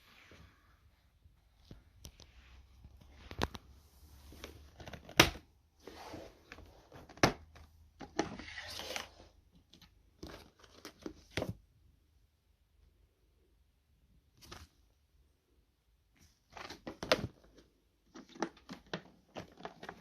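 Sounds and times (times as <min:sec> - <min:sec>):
rustling and crinkling: 0:00.0 - 0:11.7, 0:16.2 - 0:20.0.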